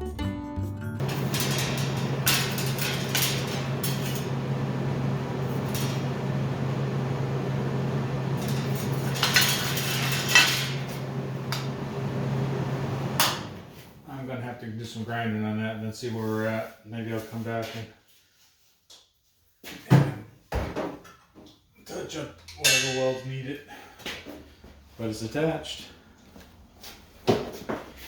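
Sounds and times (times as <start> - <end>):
welding arc crackling and humming: 1.0 - 14.0.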